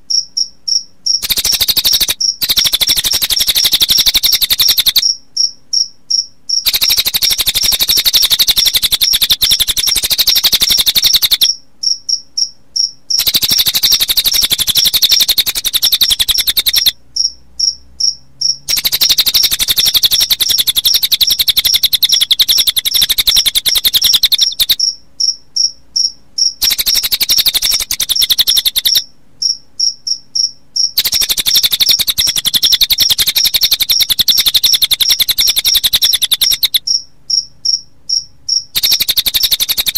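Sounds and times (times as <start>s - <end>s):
bird song: 0.0s - 39.9s
crickets chirping: 0.0s - 39.9s.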